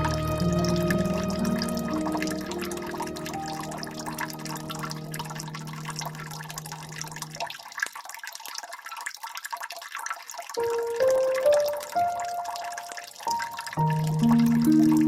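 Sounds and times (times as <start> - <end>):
soft piano: 0.0 - 7.4, 10.6 - 15.0
water dripping and trickling: 0.0 - 15.0.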